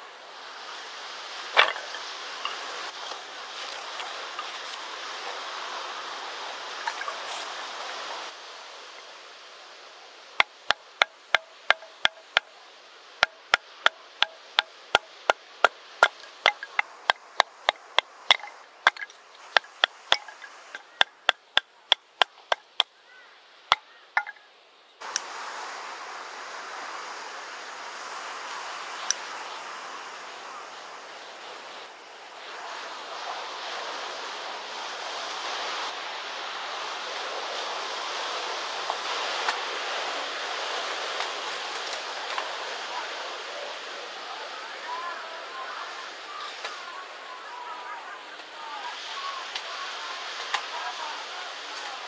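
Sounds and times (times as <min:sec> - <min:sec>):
surf: 0:00.0 - 0:52.0
wind: 0:00.0 - 0:52.0
blade chopping wood: 0:01.6 - 0:02.6, 0:10.4 - 0:12.4, 0:13.2 - 0:22.9.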